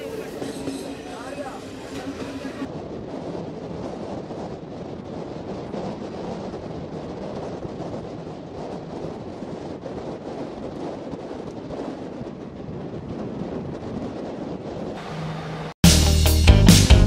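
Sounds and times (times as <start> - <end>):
wind buffeting microphone: 0.0 - 15.7
passenger train rumble: 0.0 - 17.0.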